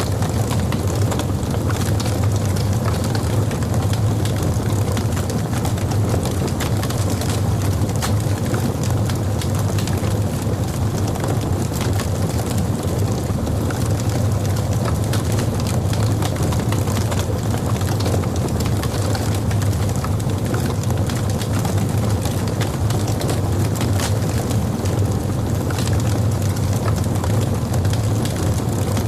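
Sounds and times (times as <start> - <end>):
logs burning and crackling: 0.0 - 29.0.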